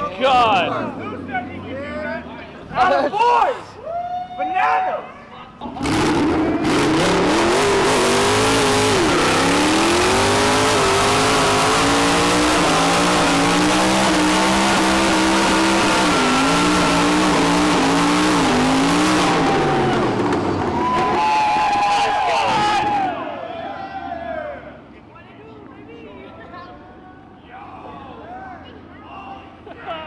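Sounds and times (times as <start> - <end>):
car engine revving high: 5.7 - 23.1
spinning tyres hissing: 5.8 - 21.6.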